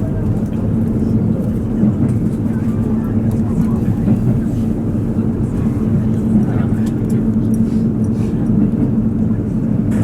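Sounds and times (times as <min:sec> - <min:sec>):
train running on track: 0:00.0 - 0:10.0.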